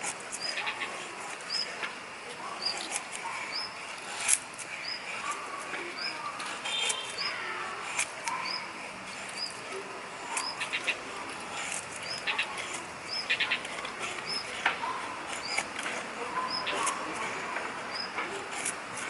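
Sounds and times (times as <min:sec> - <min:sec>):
knife scraping wood: 0:00.0 - 0:19.0
small bird chirping: 0:09.3 - 0:09.6, 0:12.0 - 0:15.7.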